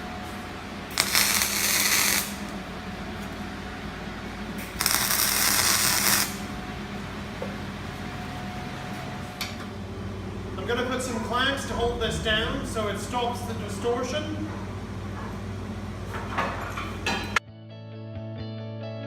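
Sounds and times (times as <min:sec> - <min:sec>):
steady hum: 0:00.0 - 0:16.2
welding arc crackling hiss: 0:00.9 - 0:03.4, 0:04.6 - 0:06.6.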